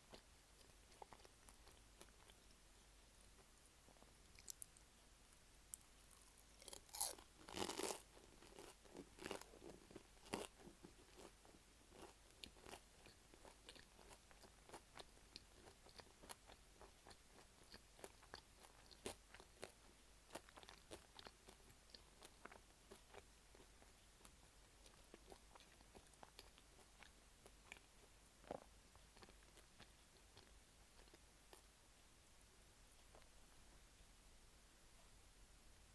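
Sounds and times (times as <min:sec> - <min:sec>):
chewing with crackling clicks: 0:00.1 - 0:04.9, 0:05.7 - 0:31.7
crunchy bite into pastry: 0:06.0 - 0:09.5.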